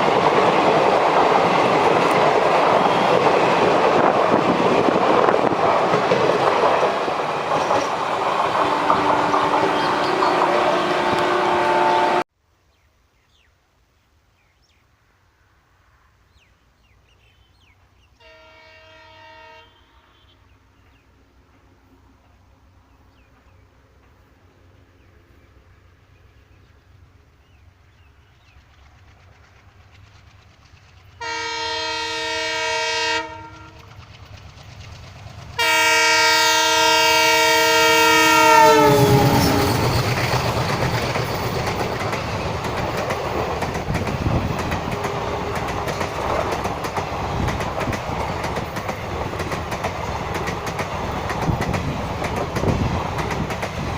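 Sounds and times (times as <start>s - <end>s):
train running with wheel noise: 0.0s - 12.3s, 16.3s - 53.9s
distant locomotive horn: 2.7s - 3.6s, 8.1s - 12.3s, 18.2s - 20.5s, 31.2s - 33.9s, 35.6s - 40.4s
bird chirps: 9.3s - 11.0s.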